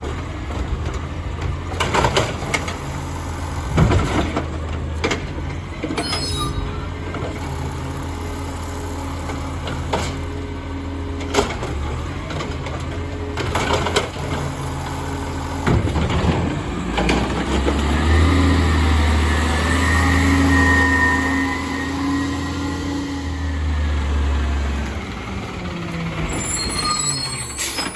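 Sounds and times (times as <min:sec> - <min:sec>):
garbage truck diesel engine: 0:00.0 - 0:27.9
hydraulic whine: 0:05.9 - 0:10.2, 0:18.6 - 0:25.4.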